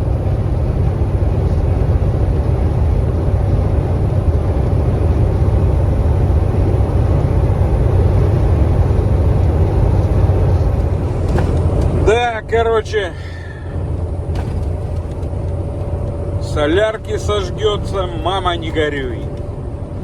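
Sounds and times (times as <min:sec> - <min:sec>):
road noise: 0:00.0 - 0:20.0
truck diesel engine drone: 0:00.0 - 0:20.0
wind pressing on truck cab: 0:01.6 - 0:12.6, 0:13.6 - 0:16.4.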